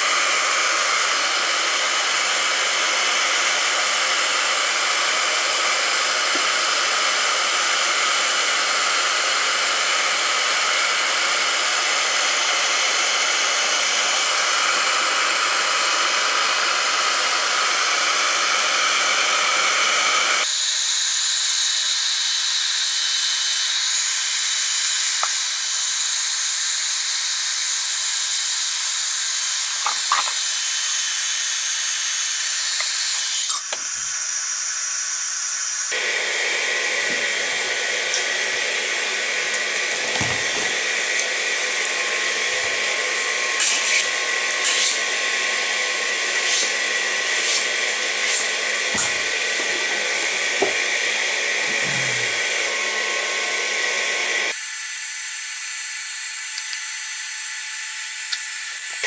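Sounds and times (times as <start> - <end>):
hot-air welding gun hissing: 20.1 - 36.0, 46.2 - 50.7, 54.5 - 59.0.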